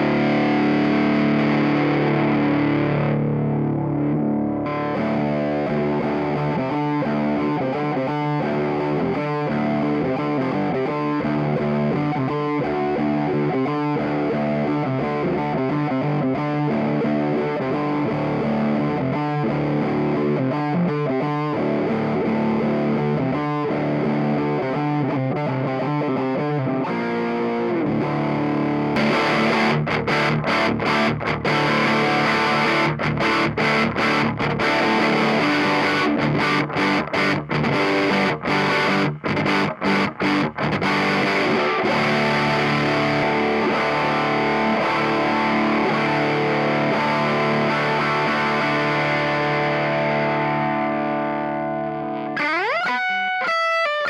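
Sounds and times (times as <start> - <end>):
distorted electric guitar chords: 0.0 - 54.0.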